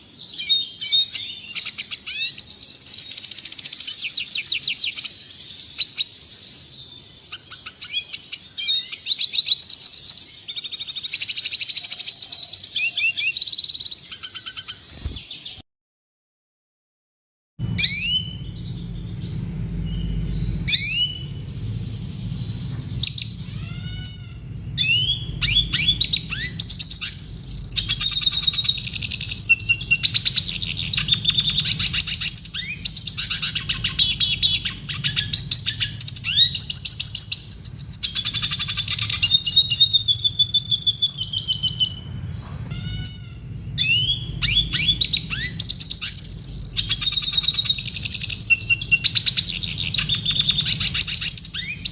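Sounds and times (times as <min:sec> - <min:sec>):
bird twittering and trilling: 0:00.0 - 0:15.6, 0:17.6 - 0:51.9
low steady hum: 0:17.6 - 0:51.9.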